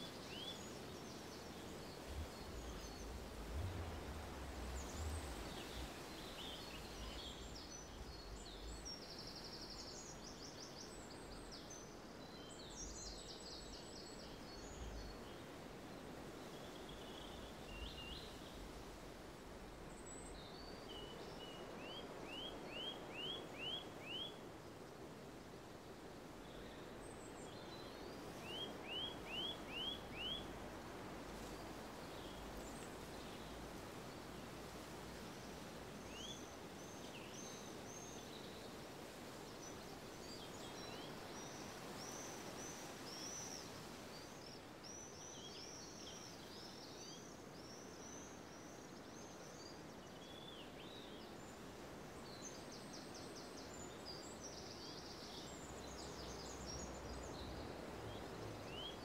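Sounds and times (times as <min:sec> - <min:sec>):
faint outdoor background hum: 0:00.0 - 0:59.0
small birds singing and chirping: 0:36.0 - 0:38.8.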